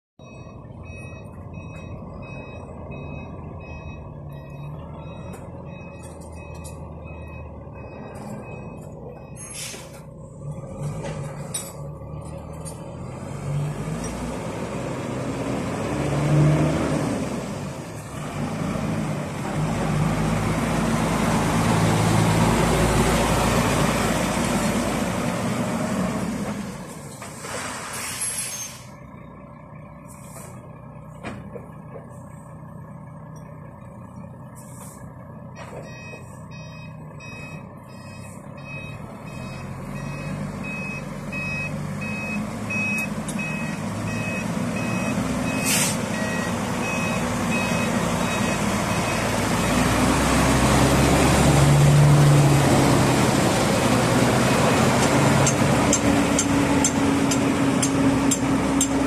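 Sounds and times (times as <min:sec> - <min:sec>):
truck diesel engine: 0:00.2 - 0:59.0
repeating high beep: 0:35.8 - 0:49.2
short air hisses: 0:45.6 - 0:46.0.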